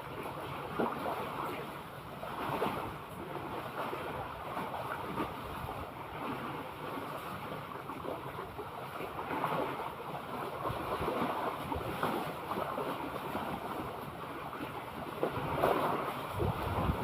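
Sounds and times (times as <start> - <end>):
sea water lapping: 0.0 - 17.0
wind on microphone: 15.0 - 17.0.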